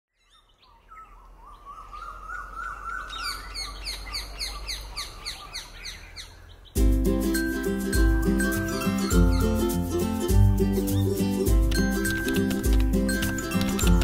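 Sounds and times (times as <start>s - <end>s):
bird warbling call: 0.4s - 6.7s
music: 6.8s - 14.0s
repeated downward bird chirps: 8.4s - 9.7s.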